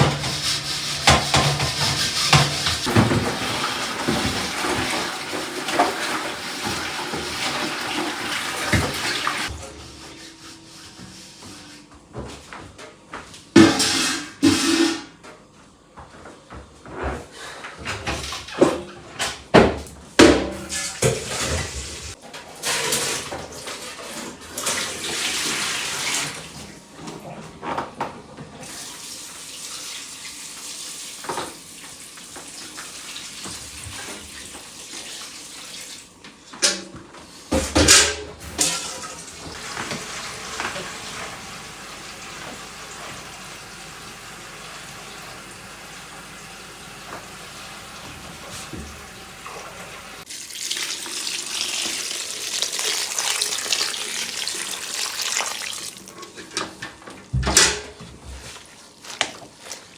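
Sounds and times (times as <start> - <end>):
water running and splashing: 0.0 - 9.5, 38.6 - 56.1.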